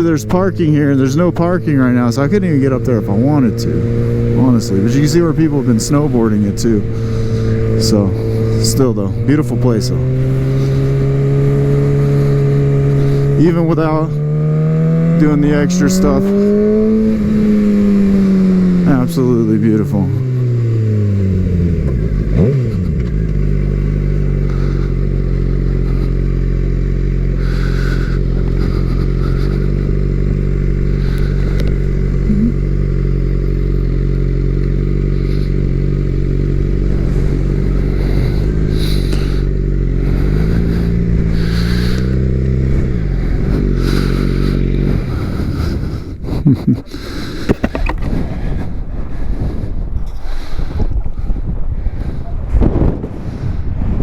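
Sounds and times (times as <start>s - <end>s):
motorcycle engine cruising: 0.0s - 54.0s
wind buffeting microphone: 27.4s - 54.0s.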